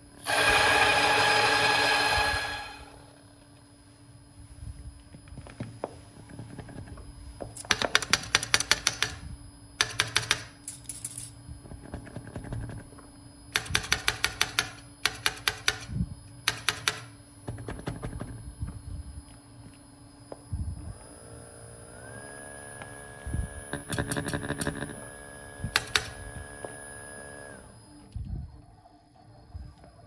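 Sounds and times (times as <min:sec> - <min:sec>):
coffee grinder humming and whining: 0:00.0 - 0:03.2, 0:20.5 - 0:28.1.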